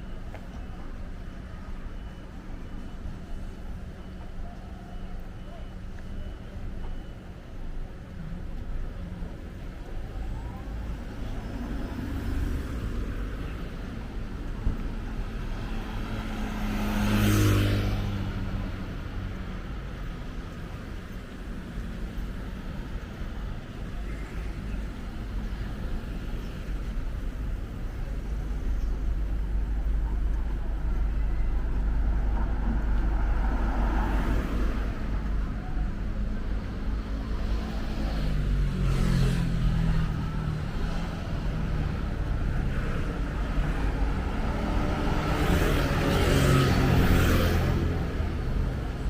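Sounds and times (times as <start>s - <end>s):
rumble of motor vehicles: 0.0s - 49.0s
cars passing close by: 11.0s - 49.0s.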